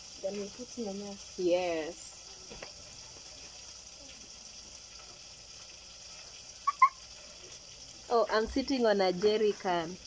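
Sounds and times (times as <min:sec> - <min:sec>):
onions sizzling in oil: 0:00.0 - 0:10.0
short pitched calls: 0:06.6 - 0:07.1.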